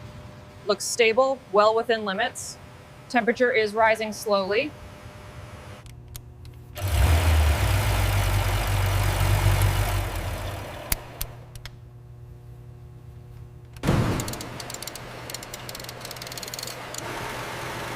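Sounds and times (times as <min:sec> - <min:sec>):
car engine idling and revving: 0:06.8 - 0:11.4, 0:14.5 - 0:17.9.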